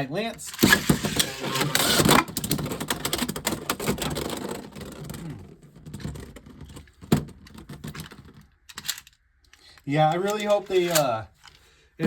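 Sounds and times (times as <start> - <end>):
plastic clicking and rattling: 0.5 - 11.6.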